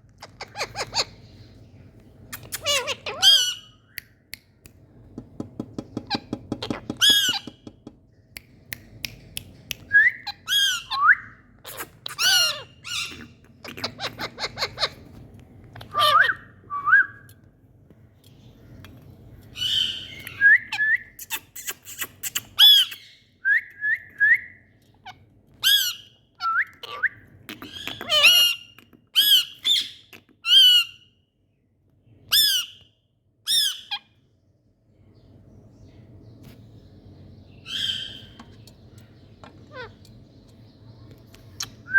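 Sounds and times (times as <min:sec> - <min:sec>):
parrots squawking and whistling: 0:00.2 - 0:01.3, 0:02.3 - 0:03.9, 0:06.1 - 0:07.6, 0:09.9 - 0:17.0, 0:19.6 - 0:23.2, 0:24.3 - 0:31.1, 0:32.3 - 0:32.8, 0:33.5 - 0:34.2, 0:37.6 - 0:38.4, 0:39.5 - 0:40.0.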